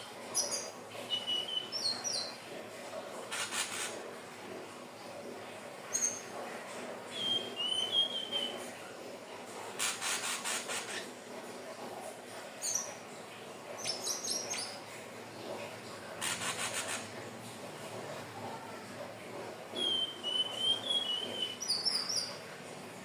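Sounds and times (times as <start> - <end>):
bird dry rattling calls: 3.3 - 4.0, 9.8 - 11.1, 16.2 - 17.1.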